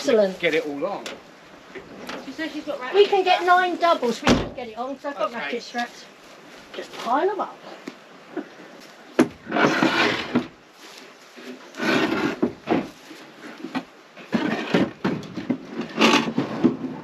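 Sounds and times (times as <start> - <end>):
wooden boxes knocking and clattering: 13.7 - 17.0.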